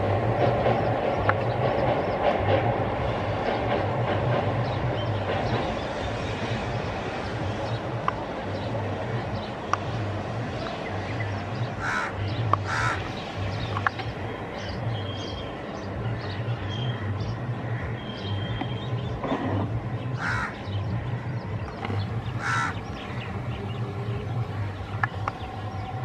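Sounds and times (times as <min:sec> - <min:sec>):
train rumbling: 0:00.0 - 0:26.0
crows cawing: 0:11.8 - 0:13.1, 0:20.2 - 0:20.6, 0:22.4 - 0:22.8.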